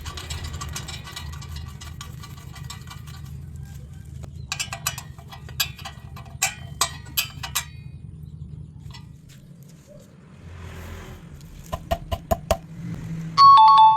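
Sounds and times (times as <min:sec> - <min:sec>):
metal clinks and taps: 0:04.4 - 0:07.9.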